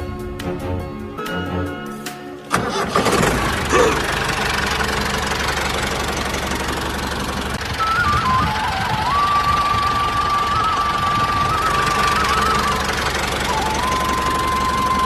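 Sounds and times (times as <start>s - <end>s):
music: 0.0s - 3.0s, 7.8s - 15.0s
rattling engine running: 2.5s - 15.0s
thin wavering whistle: 7.7s - 15.0s.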